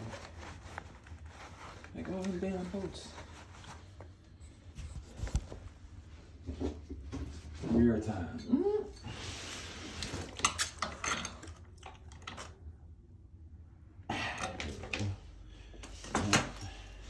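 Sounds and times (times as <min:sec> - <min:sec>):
scraping shuffle: 0:00.0 - 0:08.2.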